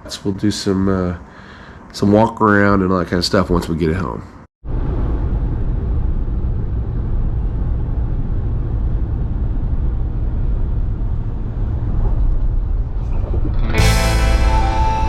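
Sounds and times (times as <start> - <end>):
road and wind noise: 4.6 - 13.7.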